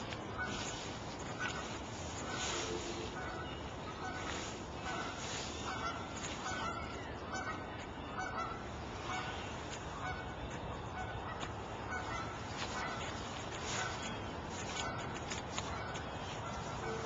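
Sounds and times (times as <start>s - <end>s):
background hiss: 0.0s - 6.9s
short bird calls: 0.3s - 17.0s.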